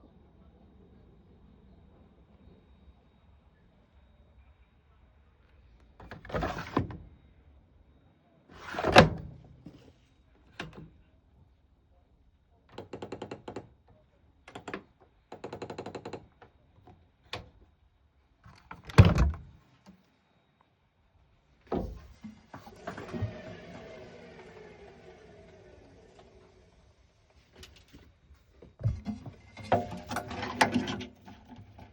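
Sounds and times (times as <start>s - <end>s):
washing machine thunks and clicks: 18.5s - 19.6s, 21.7s - 23.3s, 28.8s - 31.9s.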